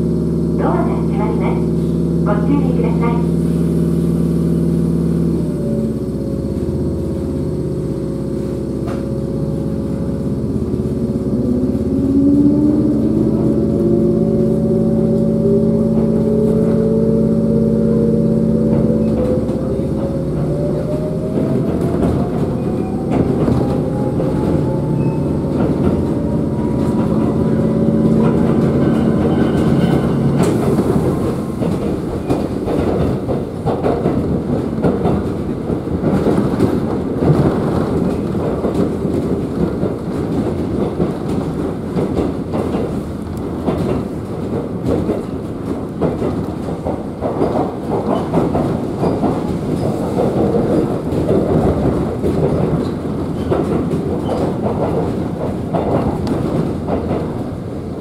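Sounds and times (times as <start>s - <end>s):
train running rumble: 0.0s - 58.0s
train traction motor whine: 0.0s - 58.0s
wheels clicking over rail joints: 13.2s - 58.0s.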